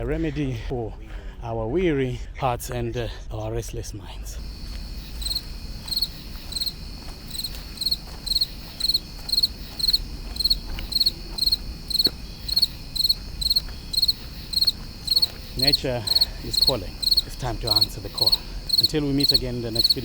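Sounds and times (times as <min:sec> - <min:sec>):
cricket chirping: 0:04.4 - 0:20.0.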